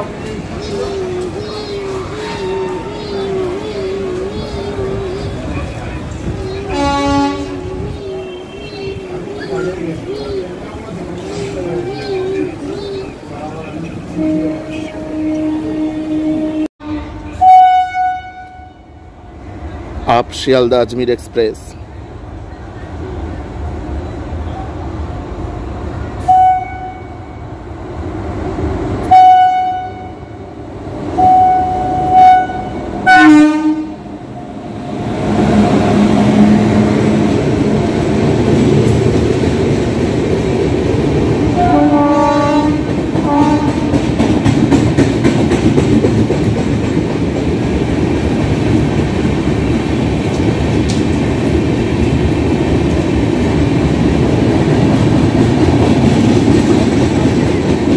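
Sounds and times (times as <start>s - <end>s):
train coaches rumbling on track: 0.0s - 57.9s
train horn blasts: 6.7s - 7.7s, 14.2s - 19.1s, 26.2s - 27.5s, 29.0s - 30.4s, 31.2s - 34.0s, 41.6s - 44.0s.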